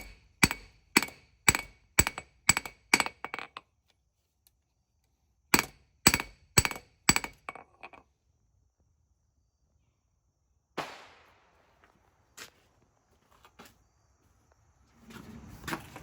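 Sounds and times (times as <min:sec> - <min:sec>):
anvil ringing: 0:00.0 - 0:03.4, 0:05.6 - 0:07.6
hammer striking steel on anvil: 0:00.0 - 0:03.4, 0:05.6 - 0:07.6.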